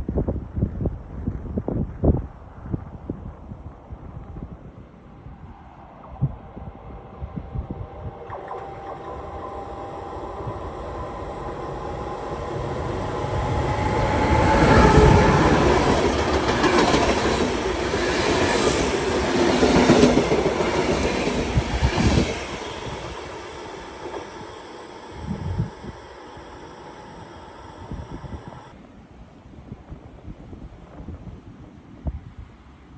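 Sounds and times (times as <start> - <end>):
train passing: 3.8 - 28.8
wheels clacking over rail joints: 8.3 - 27.8.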